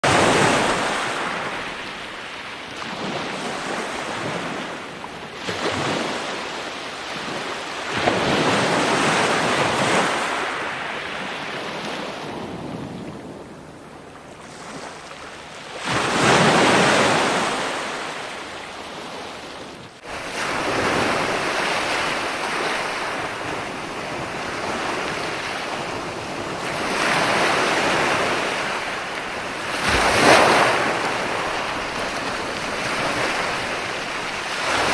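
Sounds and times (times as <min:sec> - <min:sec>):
ocean waves breaking: 0:00.0 - 0:34.9.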